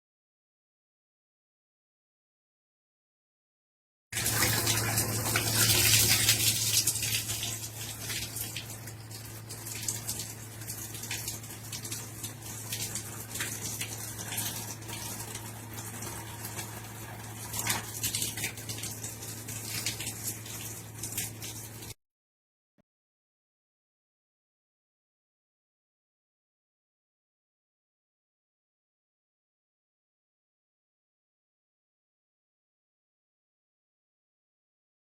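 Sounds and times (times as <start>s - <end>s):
water running and splashing: 4.2s - 22.0s.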